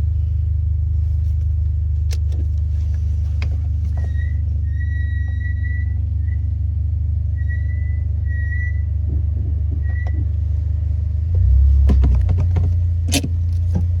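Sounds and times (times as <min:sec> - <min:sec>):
car low rumble: 0:00.0 - 0:14.0
suspension squeaking: 0:03.3 - 0:14.0
suspension clicks and knocks: 0:08.9 - 0:10.6, 0:11.2 - 0:14.0.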